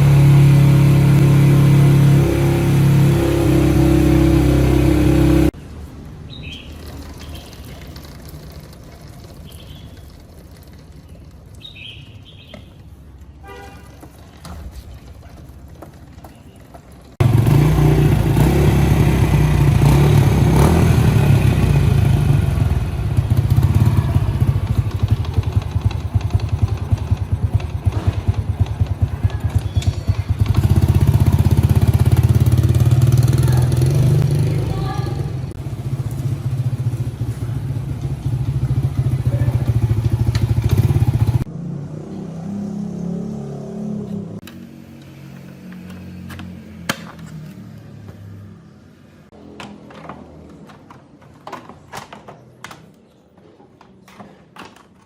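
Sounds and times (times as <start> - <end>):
motorcycle engine running: 0.0 - 5.6, 15.5 - 41.5.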